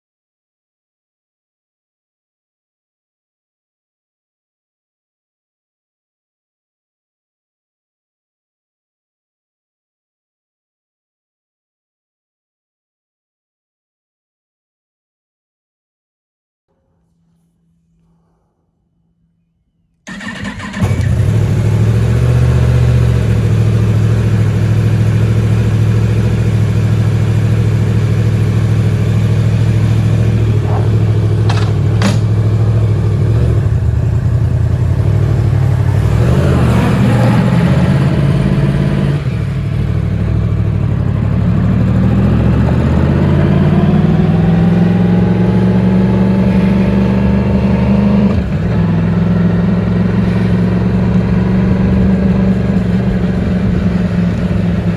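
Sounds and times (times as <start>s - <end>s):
motorcycle engine starting and idling: 20.0s - 54.9s.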